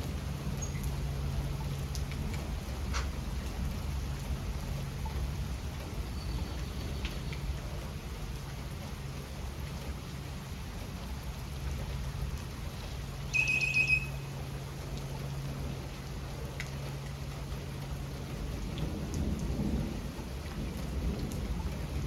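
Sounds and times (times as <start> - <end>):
steady rain falling: 0.0 - 22.0
high-pitched chirp or squeak: 13.3 - 14.2.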